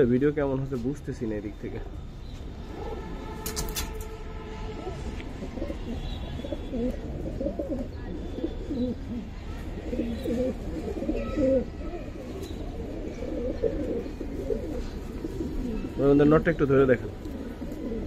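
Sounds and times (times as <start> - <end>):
pigeons cooing: 2.6 - 3.8, 4.8 - 18.0.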